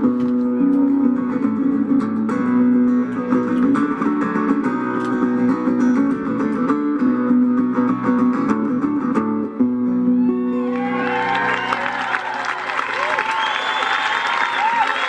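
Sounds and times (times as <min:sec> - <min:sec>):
mandolin lead: 0:00.0 - 0:11.4
acoustic guitar: 0:00.0 - 0:11.5.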